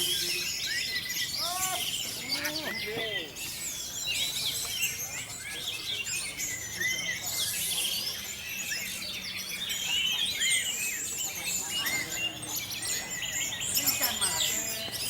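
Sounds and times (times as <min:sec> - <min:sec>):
thrushes singing: 0:00.0 - 0:04.4.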